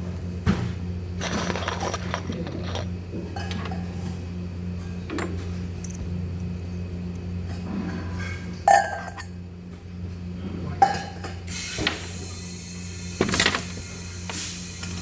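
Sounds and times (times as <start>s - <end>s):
electrical hum: 0.0s - 15.0s
metal clinking with a ring: 1.2s - 2.9s.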